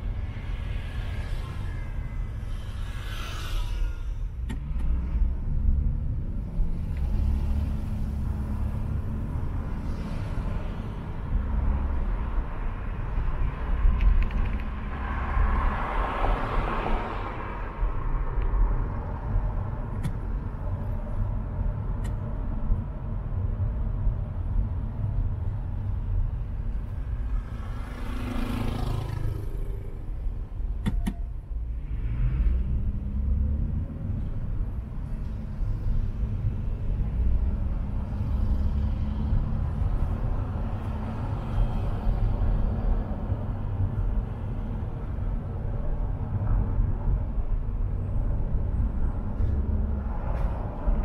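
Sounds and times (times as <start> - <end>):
car engine and road rumble: 0.0 - 51.0
vehicle passing: 27.0 - 30.3.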